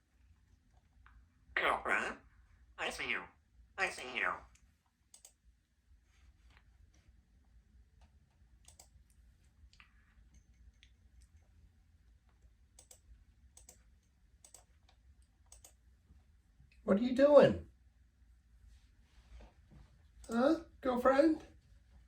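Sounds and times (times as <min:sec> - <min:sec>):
low room hum: 0:00.0 - 0:22.0
faint sharp clicks: 0:04.5 - 0:05.4, 0:08.0 - 0:11.4, 0:12.3 - 0:15.8.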